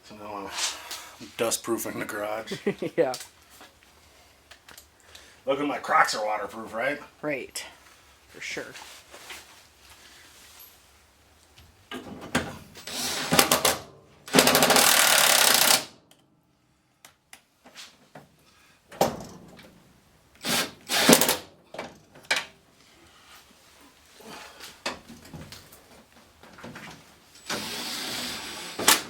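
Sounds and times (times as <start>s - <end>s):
impact tool hammering bolts: 13.0s - 15.9s.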